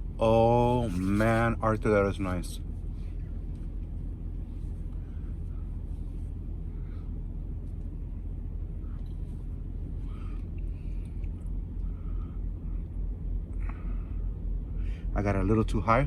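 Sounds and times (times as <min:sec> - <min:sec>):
truck engine rumble: 0:00.0 - 0:16.0
faint handling sounds: 0:00.8 - 0:01.6.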